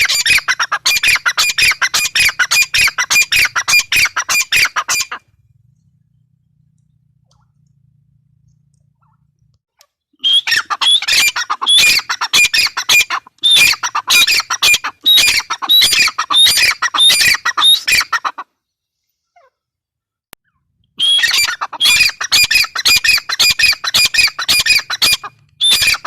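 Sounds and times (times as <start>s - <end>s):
francolin harsh repeated calls: 0.0s - 5.3s, 10.2s - 18.4s, 21.0s - 26.0s.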